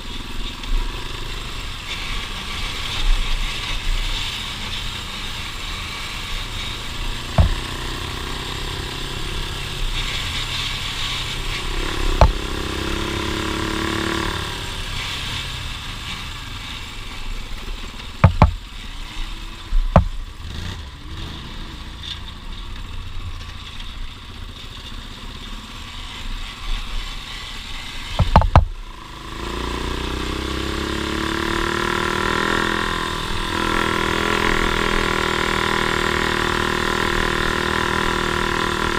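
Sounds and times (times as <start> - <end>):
off-road vehicle engine revving: 0.6 - 16.5, 17.8 - 22.2, 27.9 - 38.9
sharp knocks: 7.4 - 7.9, 12.2 - 12.5, 18.2 - 18.6, 20.0 - 20.2, 28.2 - 28.7.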